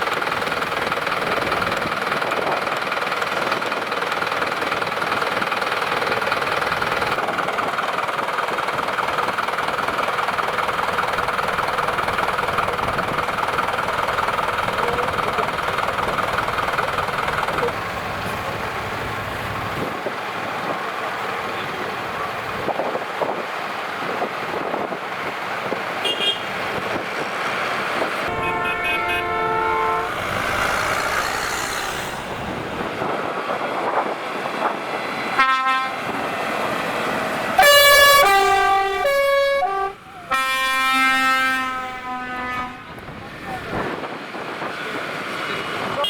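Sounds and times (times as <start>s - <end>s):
passing traffic noise: 0.0s - 46.0s
vehicle horns honking: 26.0s - 26.5s, 28.2s - 32.8s, 37.6s - 43.0s.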